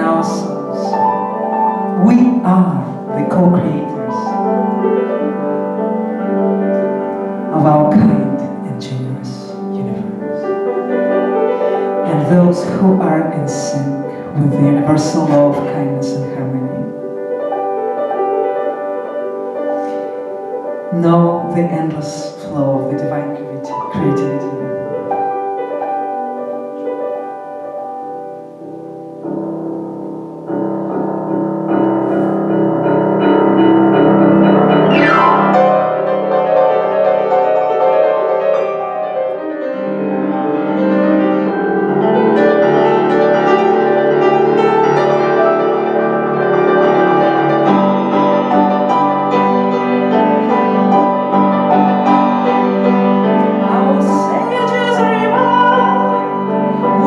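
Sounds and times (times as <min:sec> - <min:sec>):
piano-led instrumental music: 0:00.0 - 0:57.0
falling sweep: 0:34.8 - 0:36.8.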